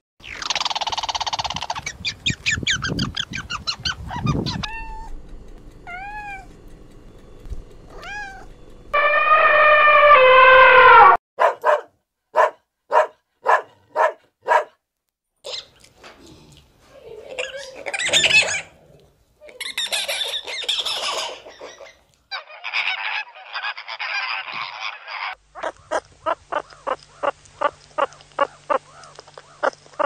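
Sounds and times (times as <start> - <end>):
elephant trumpeting: 8.9 - 11.2
dog barking: 11.4 - 14.8.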